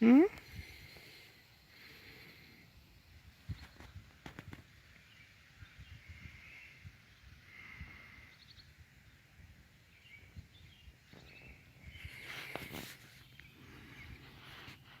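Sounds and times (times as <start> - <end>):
distant bird chirps and trills: 0.3 - 15.0
rustling noise: 3.4 - 5.0, 11.1 - 15.0.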